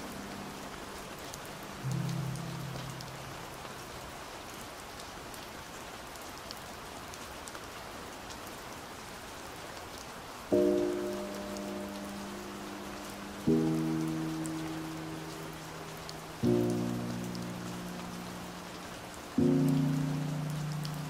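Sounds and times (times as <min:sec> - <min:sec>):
steady rain: 0:00.0 - 0:21.0
muffled slowed-down music: 0:01.8 - 0:03.6.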